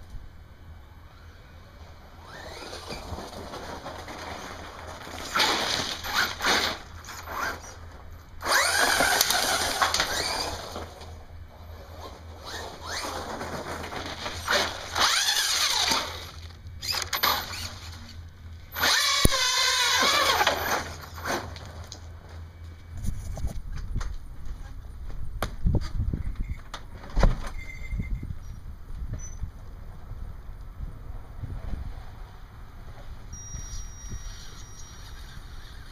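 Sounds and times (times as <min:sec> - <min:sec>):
electric motor whining: 0:02.2 - 0:04.0, 0:08.4 - 0:11.0, 0:14.2 - 0:21.3, 0:33.4 - 0:35.9.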